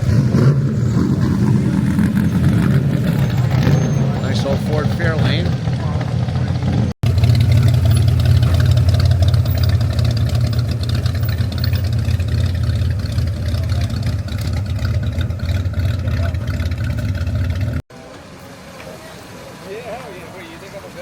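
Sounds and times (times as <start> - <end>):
car engine running: 0.0 - 17.8.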